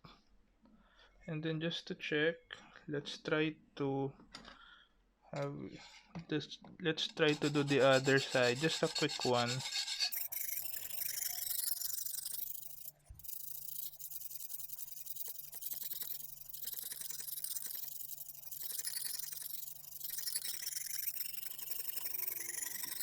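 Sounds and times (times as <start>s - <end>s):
sharpening stone scraping knife edge: 7.3s - 23.0s.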